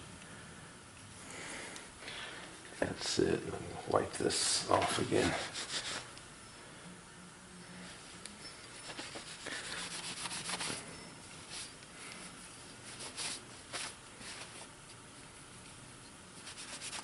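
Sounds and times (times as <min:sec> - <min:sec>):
cloth rag rubbing metal: 0:04.4 - 0:06.1, 0:08.7 - 0:14.7, 0:16.4 - 0:17.0.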